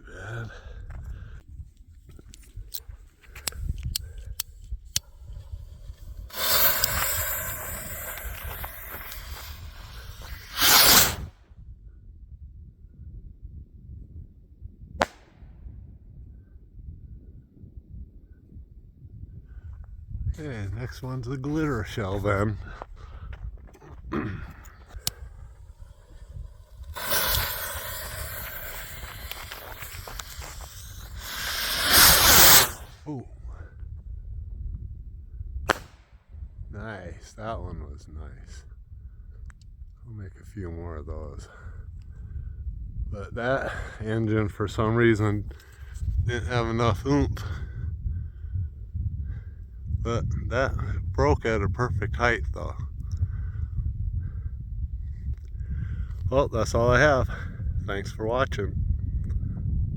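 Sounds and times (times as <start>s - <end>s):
rocket hiss: 5.2s - 11.4s, 15.0s - 15.5s, 24.9s - 33.1s, 35.7s - 36.2s
rocket whoosh: 5.4s - 11.4s, 15.0s - 15.6s, 25.0s - 33.0s, 35.7s - 36.2s.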